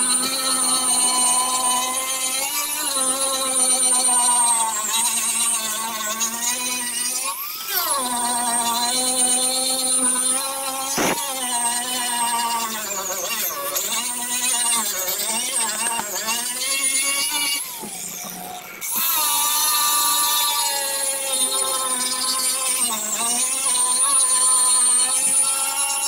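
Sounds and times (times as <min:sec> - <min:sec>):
electric grinder sanding: 0:00.0 - 0:26.0.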